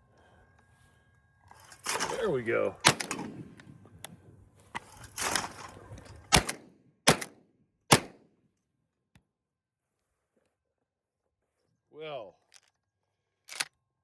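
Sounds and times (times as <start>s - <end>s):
shotgun shots: 2.8s - 3.6s, 6.3s - 8.2s.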